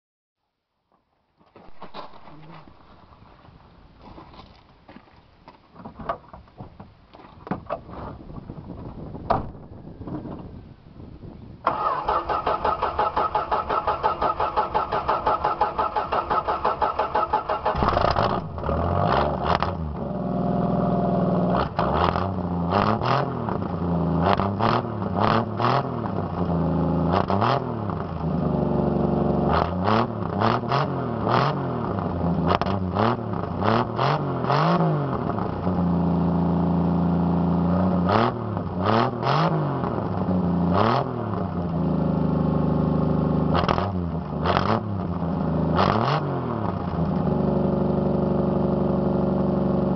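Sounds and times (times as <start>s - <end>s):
engine cranking on starter: 11.6s - 19.7s
car engine revving: 14.8s - 49.8s.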